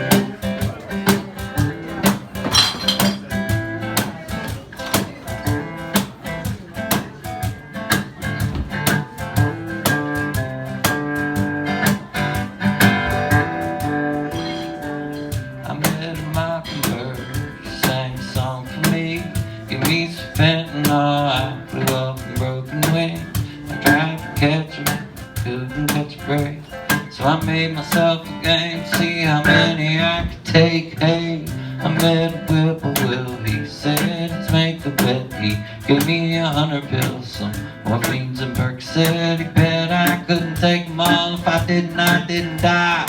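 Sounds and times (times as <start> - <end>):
strummed acoustic guitar: 0.0 - 43.0
bass line: 27.2 - 34.0.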